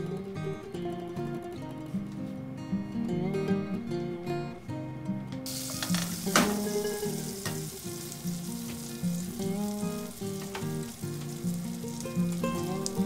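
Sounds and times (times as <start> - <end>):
soft guitar music: 0.0 - 13.0
butter sizzling in a saucepan: 5.5 - 13.0.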